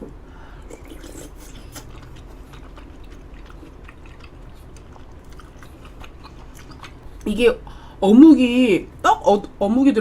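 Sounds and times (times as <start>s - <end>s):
chewing crispy food: 0.6s - 7.4s.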